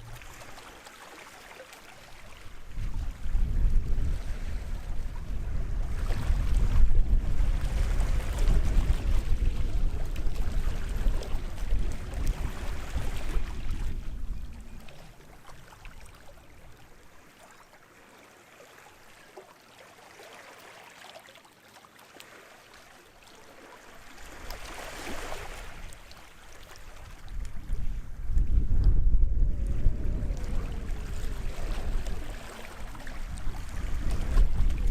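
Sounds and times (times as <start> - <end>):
small waves washing onto shore: 0.0 - 34.9
wind buffeting microphone: 2.4 - 16.9, 26.8 - 34.9.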